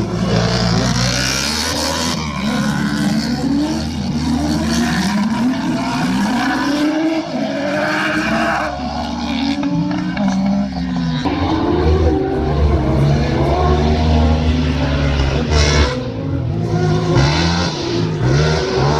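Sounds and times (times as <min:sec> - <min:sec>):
race car engines revving: 0:00.0 - 0:18.9.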